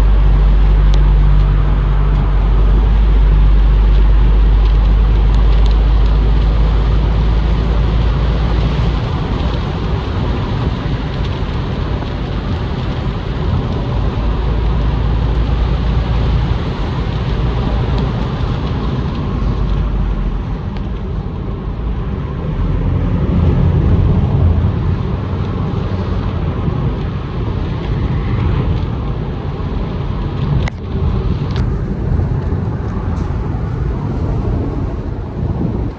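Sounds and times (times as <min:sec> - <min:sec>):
road and engine noise: 0:00.0 - 0:35.9
wind rush on microphone: 0:00.0 - 0:35.9.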